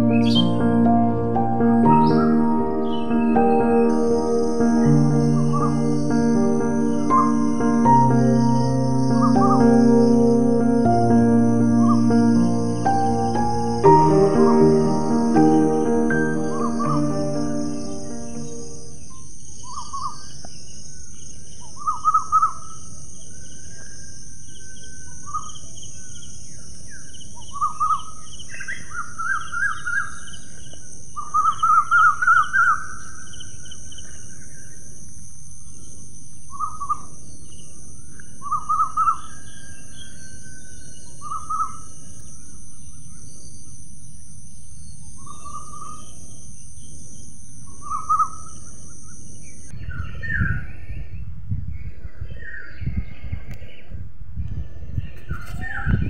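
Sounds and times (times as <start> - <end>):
birds chattering: 0.0 - 20.5
high-pitched outdoor hiss: 0.0 - 50.0.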